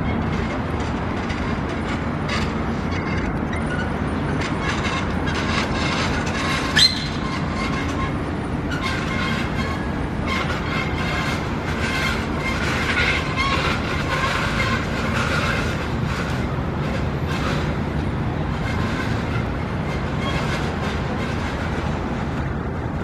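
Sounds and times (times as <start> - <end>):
steady mechanical rumble: 0.0 - 23.0
short sharp squeak: 2.3 - 15.8, 18.6 - 21.0
thin high squealing tones: 6.4 - 10.8.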